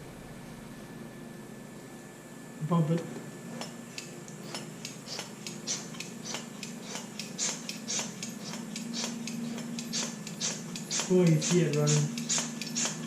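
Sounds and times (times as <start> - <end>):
steady low hum: 0.0 - 13.0
hand pump hissing strokes: 4.0 - 13.0.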